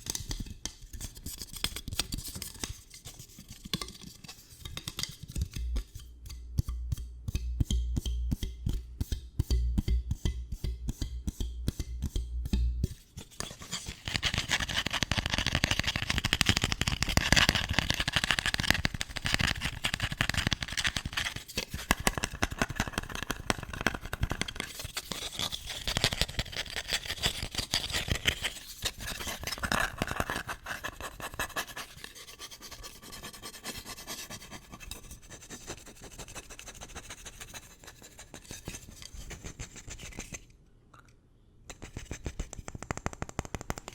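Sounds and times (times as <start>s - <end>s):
fast continuous scratching: 13.4s - 40.4s
tapping on hard object: 41.7s - 43.9s.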